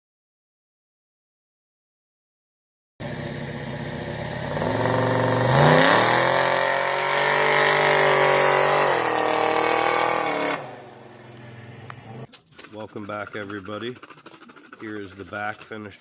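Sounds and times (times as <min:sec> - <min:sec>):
vehicle engine revving: 0:03.0 - 0:10.8.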